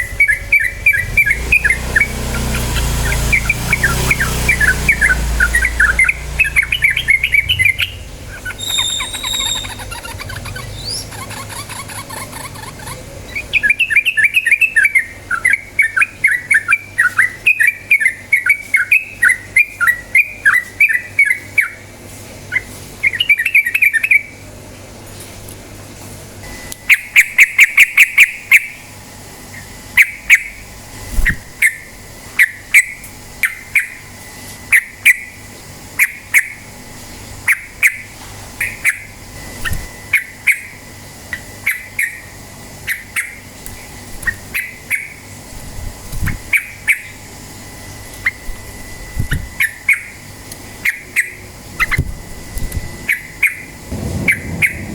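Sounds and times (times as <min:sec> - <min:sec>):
bird singing chirped phrases: 0:00.0 - 0:21.8.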